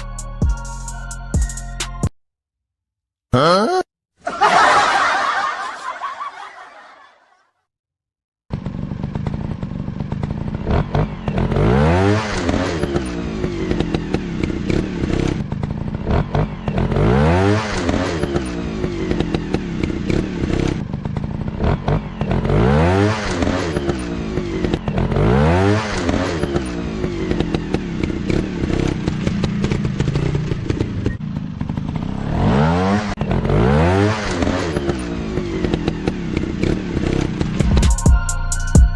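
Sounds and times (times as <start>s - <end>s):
dirt bike engine revving: 8.5s - 37.8s.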